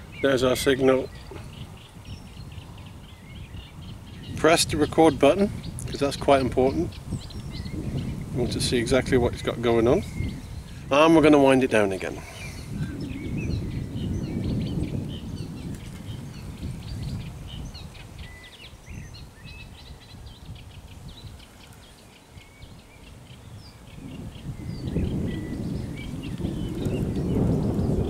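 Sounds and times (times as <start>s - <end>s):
small birds chirping: 0.0s - 28.0s
low rumbling noise: 23.4s - 28.0s.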